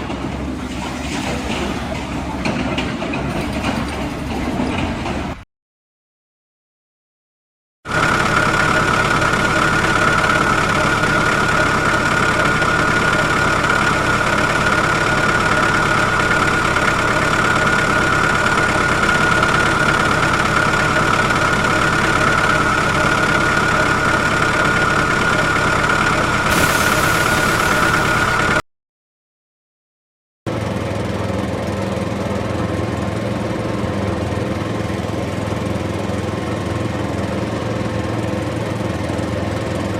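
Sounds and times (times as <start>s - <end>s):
engine running: 7.9s - 28.6s
high steady whine: 7.9s - 28.6s.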